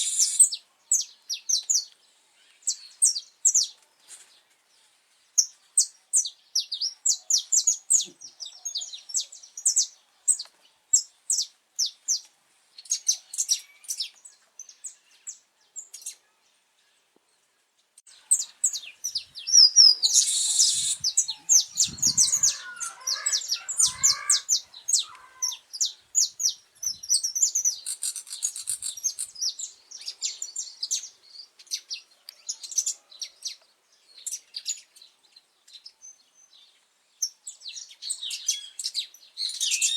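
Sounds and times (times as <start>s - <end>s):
finch singing: 18.1s - 33.6s.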